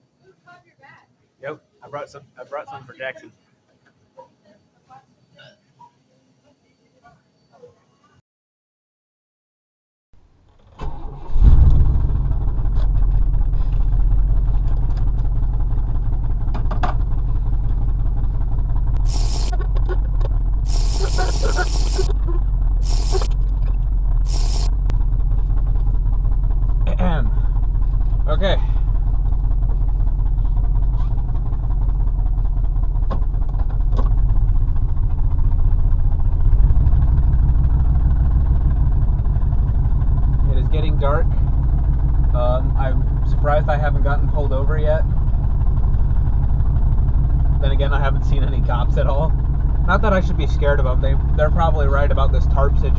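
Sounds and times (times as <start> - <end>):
pickup truck engine starting: 10.4 - 52.9
short clicks: 22.8 - 23.4.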